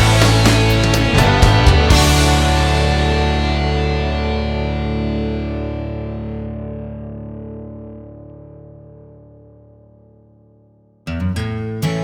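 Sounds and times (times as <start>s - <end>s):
distorted electric guitar chord: 0.0s - 10.6s.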